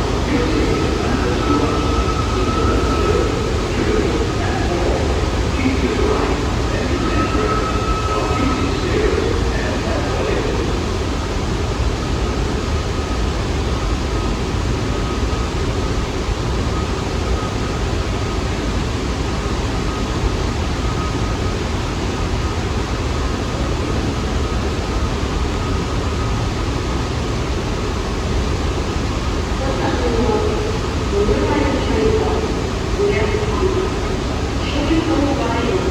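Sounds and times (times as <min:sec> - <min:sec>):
faint steady tone: 0:00.0 - 0:35.9
subway train rushing: 0:00.0 - 0:35.9.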